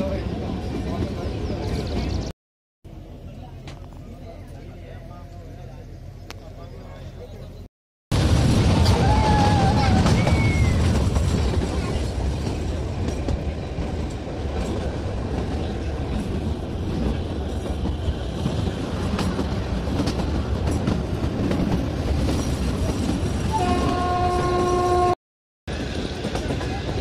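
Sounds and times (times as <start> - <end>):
train wheels rumbling on rails: 8.2 - 27.0
train horn held note: 23.5 - 25.2.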